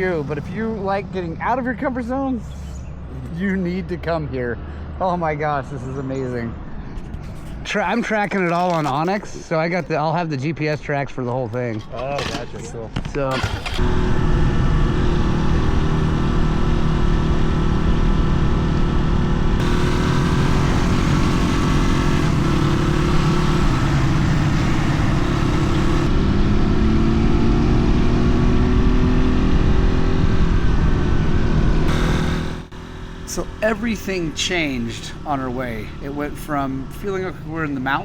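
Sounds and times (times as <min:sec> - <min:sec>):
dirt bike engine revving: 0:13.3 - 0:38.0.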